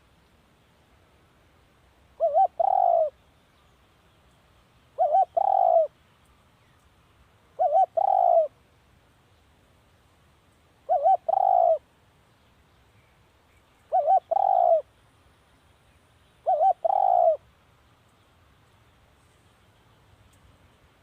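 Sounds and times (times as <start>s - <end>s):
dove cooing: 2.2s - 3.2s, 5.0s - 6.0s, 7.6s - 8.6s, 10.9s - 11.8s, 13.9s - 14.9s, 16.4s - 17.4s.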